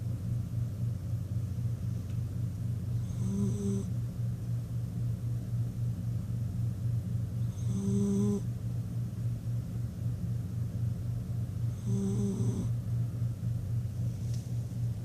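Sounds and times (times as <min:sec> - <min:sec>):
dog snoring: 0:03.0 - 0:04.0, 0:07.4 - 0:08.5, 0:11.6 - 0:12.8.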